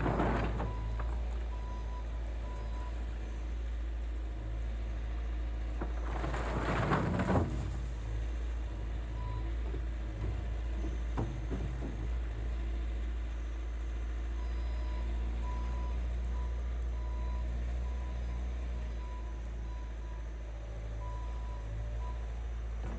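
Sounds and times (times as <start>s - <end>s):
rushing clatter: 0.0s - 1.2s, 5.9s - 8.3s
skid steer engine running: 0.0s - 22.9s.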